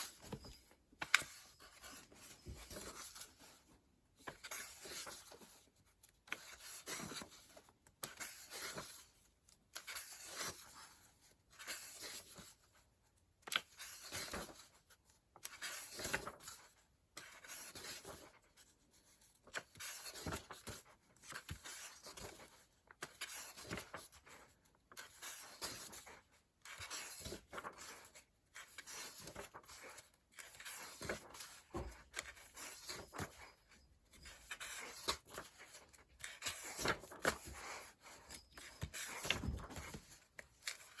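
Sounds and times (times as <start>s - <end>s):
paper pages rustling: 0.0s - 3.6s, 4.2s - 5.6s, 13.5s - 41.0s.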